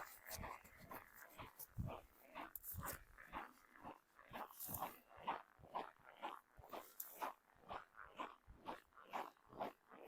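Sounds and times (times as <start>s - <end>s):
footsteps crunching on snow: 0.0s - 3.7s.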